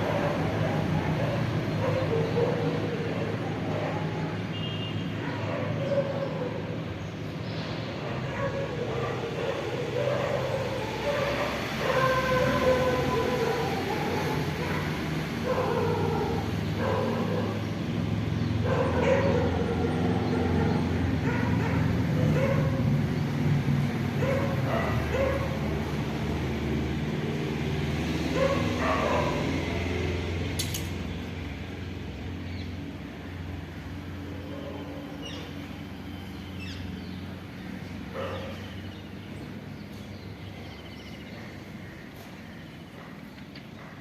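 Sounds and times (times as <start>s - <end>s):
dog barking: 0.0s - 4.4s, 5.1s - 6.8s, 8.0s - 17.7s, 18.6s - 23.0s, 24.2s - 25.6s, 28.3s - 29.7s, 34.4s - 35.5s, 38.1s - 38.7s.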